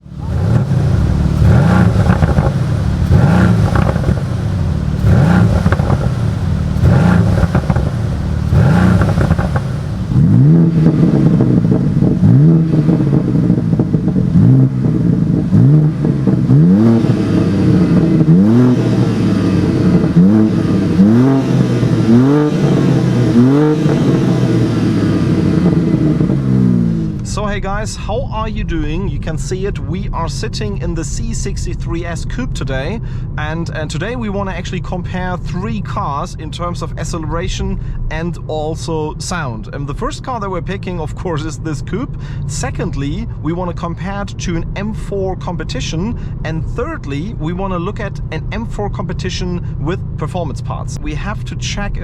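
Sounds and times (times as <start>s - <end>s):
car engine revving hard: 0.0s - 27.3s.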